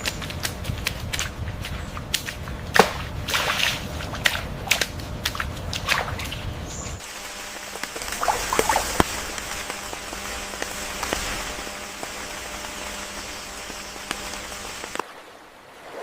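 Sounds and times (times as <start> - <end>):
small clicks and patters: 7.5 - 15.0.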